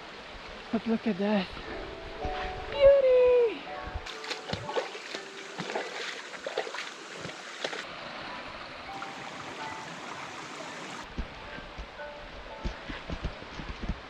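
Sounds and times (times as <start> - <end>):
stream rushing over rocks: 0.0 - 14.0
water splashes and taps: 1.6 - 3.0, 3.8 - 7.9, 8.9 - 12.0.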